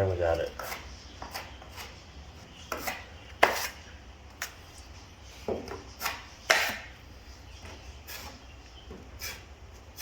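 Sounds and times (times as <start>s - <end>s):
drywall knife clacking and scraping: 0.1s - 2.0s, 2.6s - 4.6s, 5.4s - 6.9s.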